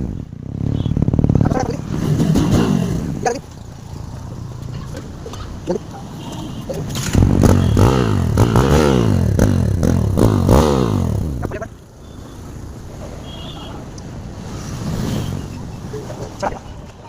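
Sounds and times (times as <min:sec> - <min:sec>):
motorcycle engine revving and idling: 0:00.0 - 0:05.8, 0:06.7 - 0:11.7.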